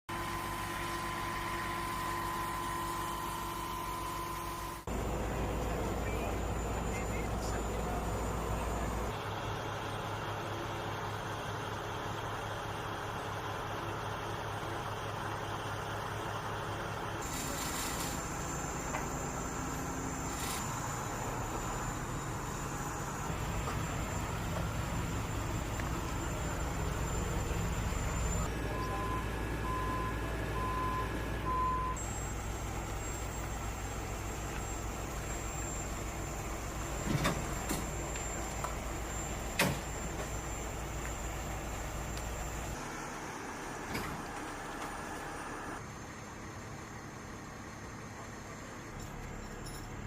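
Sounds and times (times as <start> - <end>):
thin high whine: 0.1 - 9.2, 17.2 - 29.0
constant higher tone: 0.1 - 50.0
vehicle engine hum: 0.1 - 50.0.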